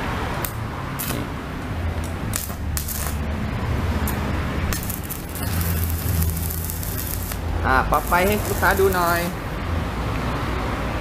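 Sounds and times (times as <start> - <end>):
welding arc crackling: 0.4 - 1.3, 2.0 - 3.4, 4.0 - 9.4
steady low hum: 0.7 - 9.7.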